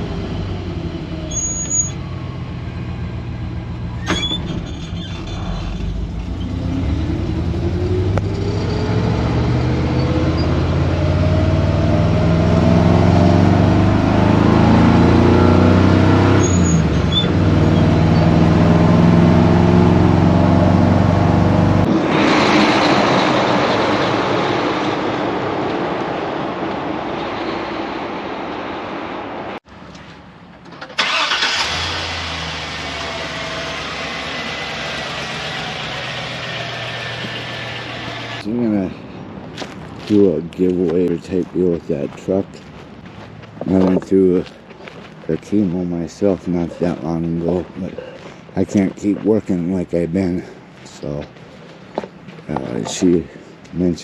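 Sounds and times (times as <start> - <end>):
vehicle engine accelerating: 0.0 - 26.6, 31.0 - 38.6.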